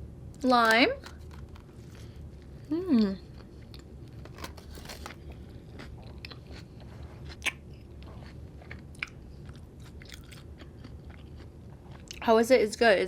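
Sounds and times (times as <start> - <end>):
person chewing food: 3.2 - 12.2.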